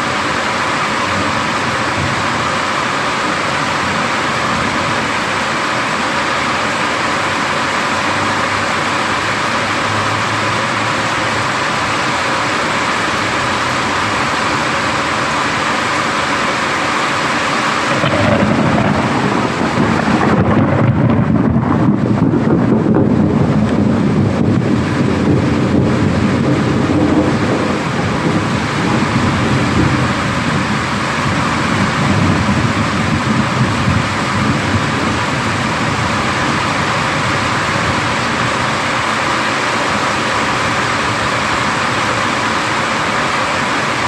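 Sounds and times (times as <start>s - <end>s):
heavy rain hissing: 0.0s - 44.0s
deep thunder rumble: 17.8s - 38.6s.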